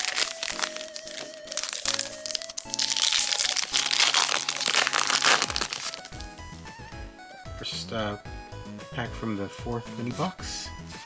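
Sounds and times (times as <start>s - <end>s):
packaging crinkling and tearing: 0.0s - 6.3s
background music: 0.0s - 11.0s.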